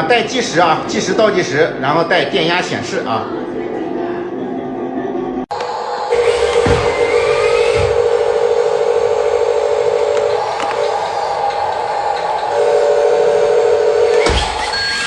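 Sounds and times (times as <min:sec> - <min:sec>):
toy vehicle motor whirring: 0:06.1 - 0:15.0.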